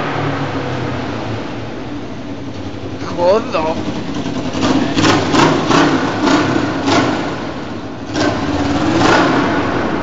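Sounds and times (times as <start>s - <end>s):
motorcycle engine surging: 2.8s - 10.0s.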